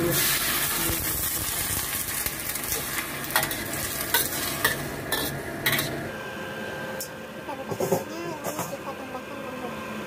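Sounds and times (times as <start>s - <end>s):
mushrooms sizzling in a wok: 0.0s - 6.4s.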